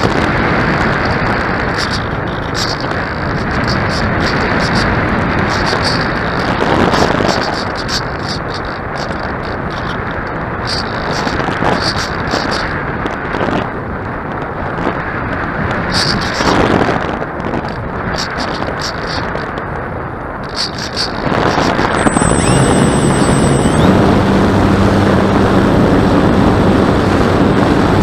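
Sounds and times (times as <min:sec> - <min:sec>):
hum with high whine: 0:20.4 - 0:28.0.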